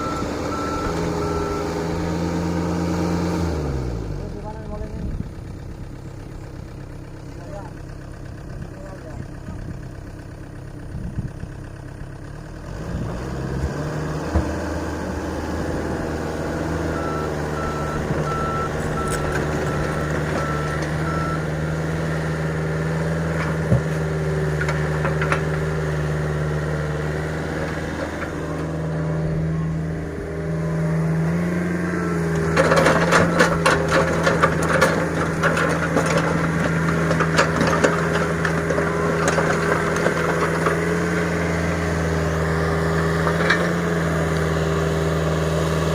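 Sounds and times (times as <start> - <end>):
reversing alarm beeping: 0.0 - 1.8, 16.9 - 21.6
heavy machinery engine running: 0.0 - 45.9
rattling and clattering: 32.4 - 41.2.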